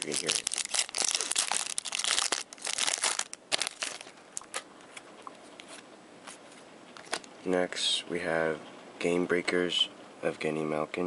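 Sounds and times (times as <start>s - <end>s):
wrapper crinkling and tearing: 0.0s - 4.6s.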